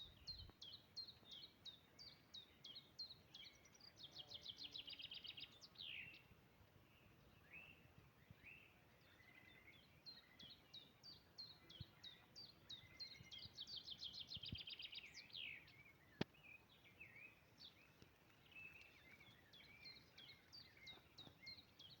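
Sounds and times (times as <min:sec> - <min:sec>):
songbirds singing: 0:00.0 - 0:22.0.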